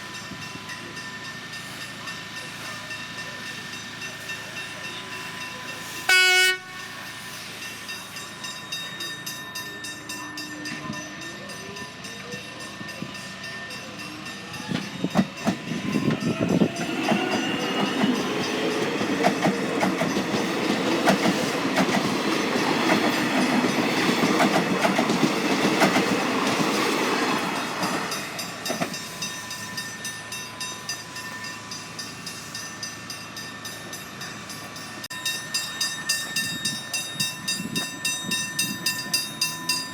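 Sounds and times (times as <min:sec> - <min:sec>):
train horn blast: 0:06.0 - 0:06.8
level crossing bells ringing: 0:07.5 - 0:39.9
train wheel clatter: 0:10.5 - 0:30.1.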